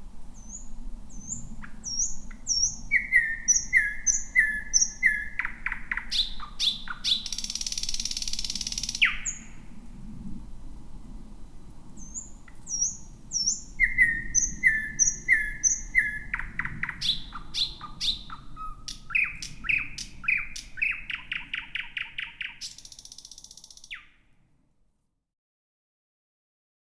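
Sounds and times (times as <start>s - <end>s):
nightingale singing: 0.4s - 9.7s, 12.0s - 24.2s.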